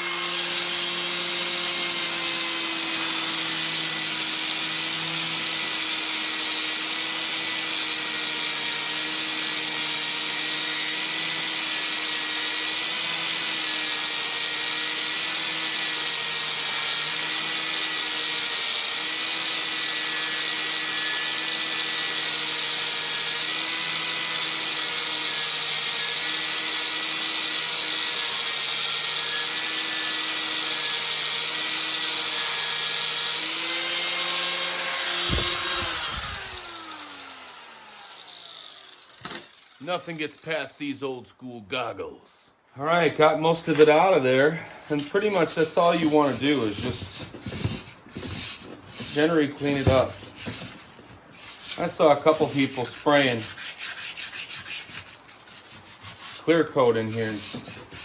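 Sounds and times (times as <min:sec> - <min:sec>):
power tool motor hum: 0:13.7 - 0:39.8.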